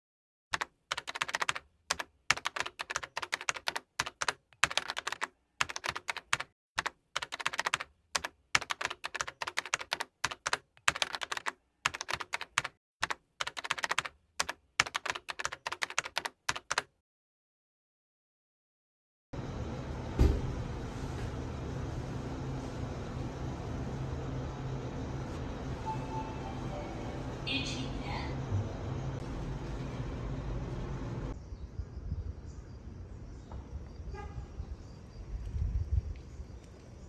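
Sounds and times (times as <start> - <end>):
keyboard typing: 0.6 - 17.0.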